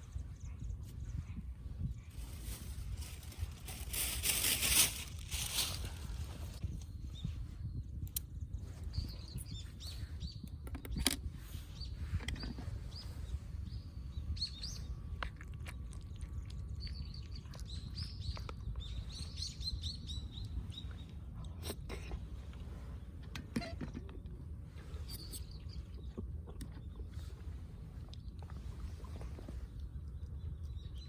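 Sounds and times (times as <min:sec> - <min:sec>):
steady low rumble: 0:00.0 - 0:10.6
small birds chirping: 0:00.0 - 0:24.1, 0:24.7 - 0:31.0.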